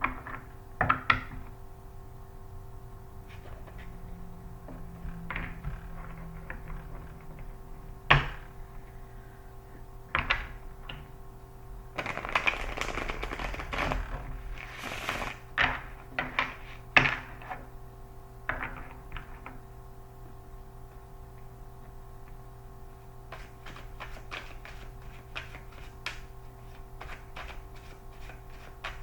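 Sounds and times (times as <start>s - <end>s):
steady hum: 0.0s - 29.0s
rapid card shuffling: 12.0s - 15.5s, 23.3s - 29.0s.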